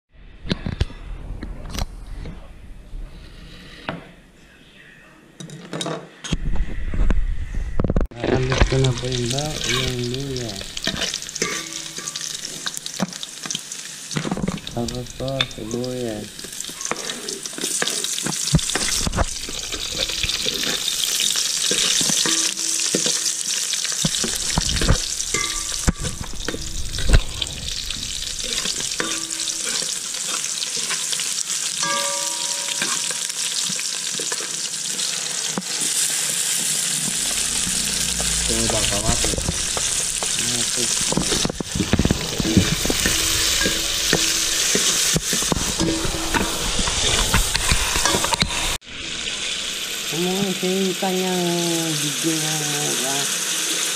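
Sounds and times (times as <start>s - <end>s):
onion and tomato sizzling in oil: 8.1s - 53.9s
metal spoon scraping a pot: 8.5s - 12.8s, 16.5s - 33.2s, 37.0s - 48.8s.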